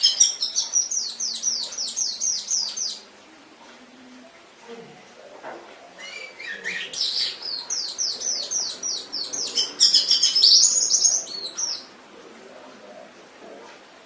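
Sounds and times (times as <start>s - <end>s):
canary singing: 0.0s - 3.2s, 5.9s - 12.0s.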